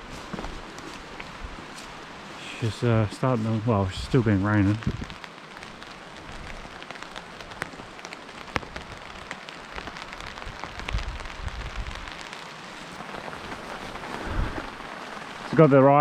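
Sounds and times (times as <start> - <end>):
rain falling: 0.0 - 16.0
raindrops ticking: 0.4 - 16.0
dull low bumps: 2.7 - 5.2.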